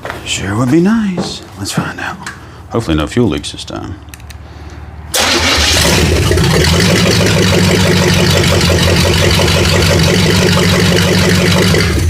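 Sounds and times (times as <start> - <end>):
car engine running loud: 5.2 - 12.0.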